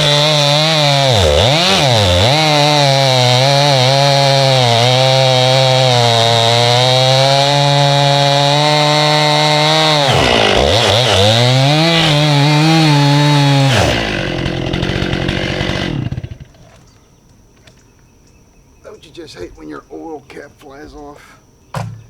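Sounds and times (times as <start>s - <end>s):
chainsaw cutting log: 0.0s - 16.9s.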